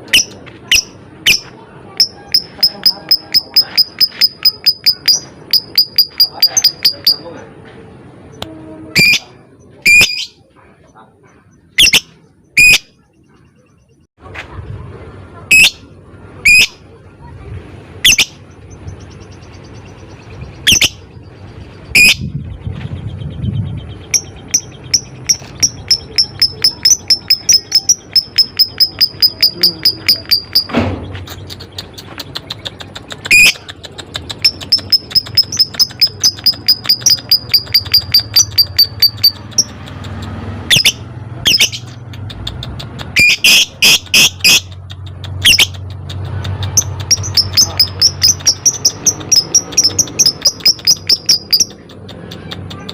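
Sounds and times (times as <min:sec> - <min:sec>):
fast high chirping: 0:00.2 - 0:07.2, 0:11.7 - 0:12.9, 0:18.0 - 0:21.1, 0:23.3 - 0:52.9
lovebirds squawking: 0:18.0 - 0:21.1, 0:23.3 - 0:40.0, 0:40.6 - 0:52.9.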